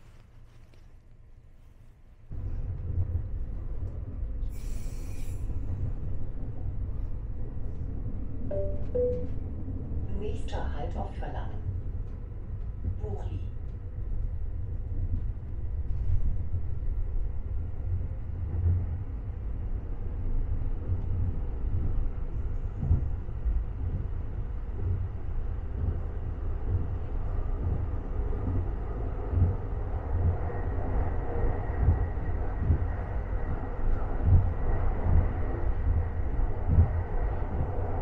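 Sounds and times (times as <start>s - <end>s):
train rumbling: 0.0s - 38.0s
faint high tone: 8.5s - 9.4s.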